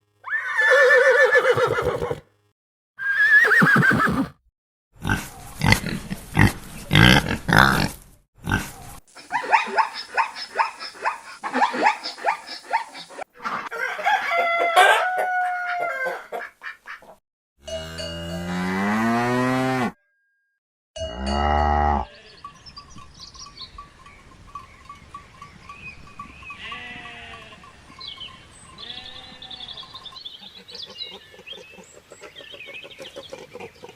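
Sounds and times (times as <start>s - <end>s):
farm animals calling: 0.2s - 2.2s, 3.0s - 4.3s, 8.6s - 17.1s, 21.4s - 33.9s.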